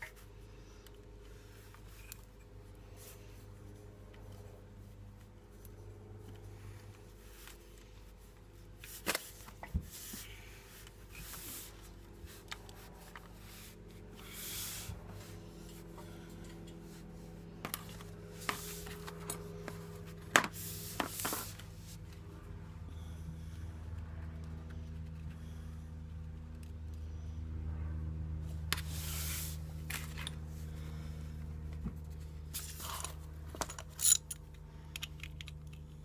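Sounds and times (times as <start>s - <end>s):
steady low hum: 0.0s - 36.0s
brief rubbing sounds: 28.8s - 30.1s.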